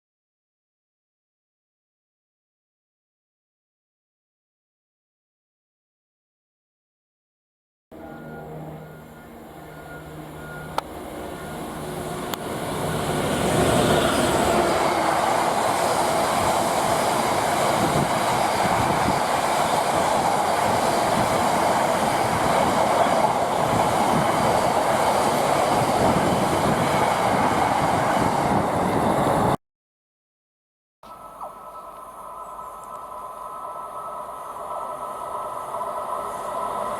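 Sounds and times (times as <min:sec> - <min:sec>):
freight train passing: 0:07.9 - 0:29.6, 0:31.2 - 0:36.9.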